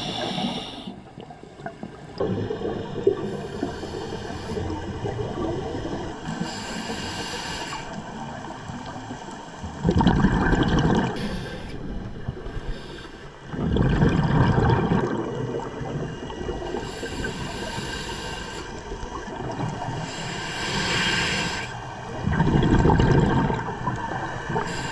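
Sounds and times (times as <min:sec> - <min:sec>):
regulator inhalation hiss: 0:00.0 - 0:01.0, 0:03.0 - 0:04.9, 0:06.2 - 0:08.1, 0:11.2 - 0:11.9, 0:12.5 - 0:13.4, 0:16.8 - 0:19.0, 0:20.0 - 0:21.9, 0:24.6 - 0:24.9
exhaled air bubbling: 0:00.0 - 0:24.9.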